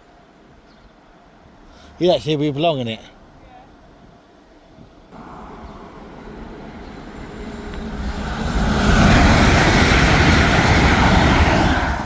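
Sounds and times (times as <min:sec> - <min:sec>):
train rushing past: 0:05.2 - 0:12.0.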